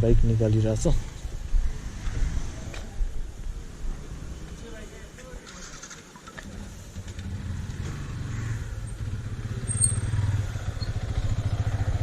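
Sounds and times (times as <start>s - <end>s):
motorcycle engine idling: 6.5s - 12.0s.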